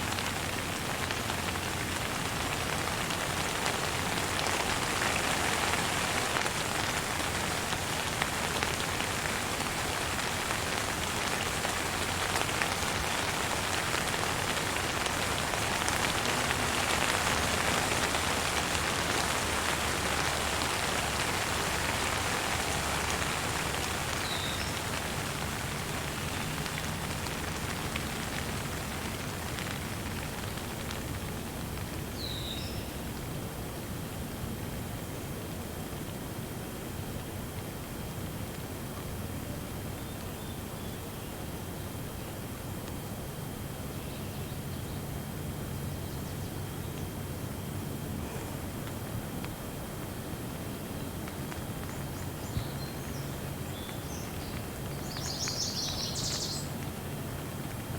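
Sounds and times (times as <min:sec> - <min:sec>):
steady rain: 0:00.0 - 0:57.9
bird chirp: 0:52.4 - 0:56.7.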